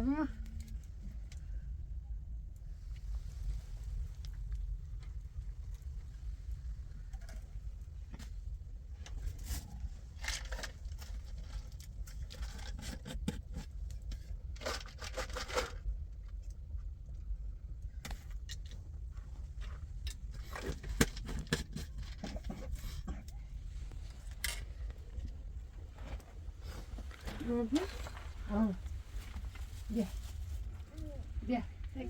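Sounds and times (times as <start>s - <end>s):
steady low rumble: 0.0s - 12.6s, 15.5s - 32.0s
irregular scraping and crackling: 9.0s - 16.6s, 18.0s - 32.0s.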